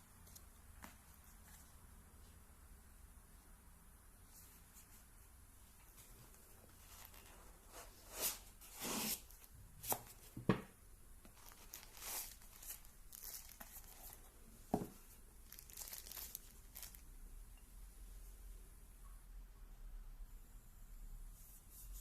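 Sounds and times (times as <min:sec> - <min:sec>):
packaging crinkling and tearing: 0:11.3 - 0:14.2, 0:15.4 - 0:17.0.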